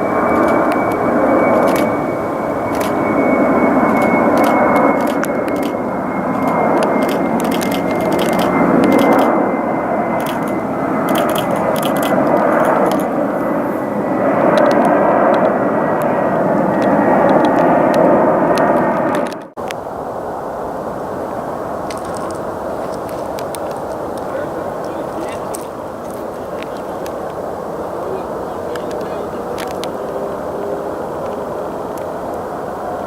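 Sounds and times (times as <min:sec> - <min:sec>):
sharp crackling: 0:00.0 - 0:13.6, 0:28.1 - 0:30.2
high whine: 0:00.0 - 0:33.0
jet engines roaring: 0:00.0 - 0:33.0.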